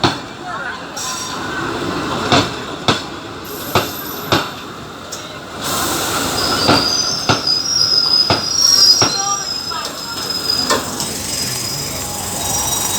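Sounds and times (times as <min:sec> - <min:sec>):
train wheels clacking over rail joints: 0:01.0 - 0:12.9
high squeal of braking wheels: 0:05.7 - 0:12.9.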